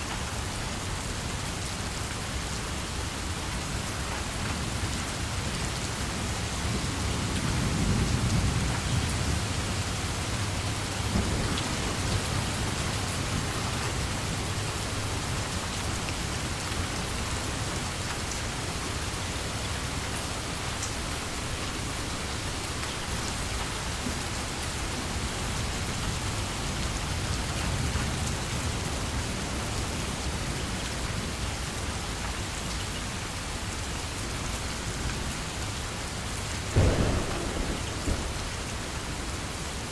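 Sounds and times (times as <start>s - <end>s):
heavy rain: 0.0s - 39.9s
thunder rumbling: 36.7s - 39.9s.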